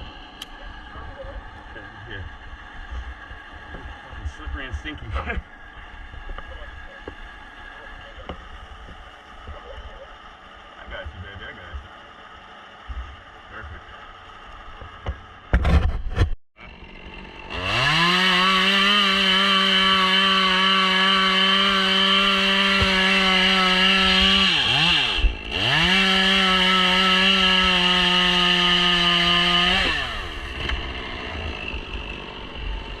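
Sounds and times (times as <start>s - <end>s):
chainsaw at full throttle: 16.6s - 33.0s.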